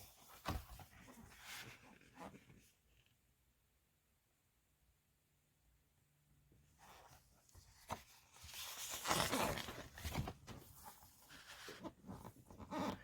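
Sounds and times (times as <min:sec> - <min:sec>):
book pages rustling: 0:06.8 - 0:13.0.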